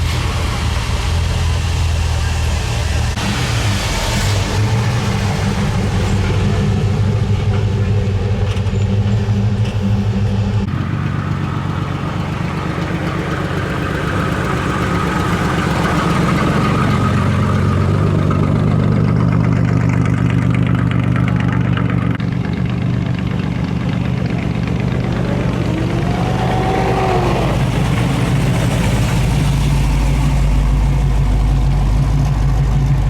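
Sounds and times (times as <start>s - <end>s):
cars driving slowly past: 9.2s - 33.0s.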